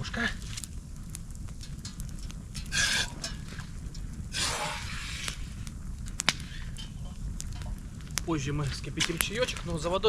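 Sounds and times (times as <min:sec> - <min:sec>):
campfire crackling: 0:00.0 - 0:10.0.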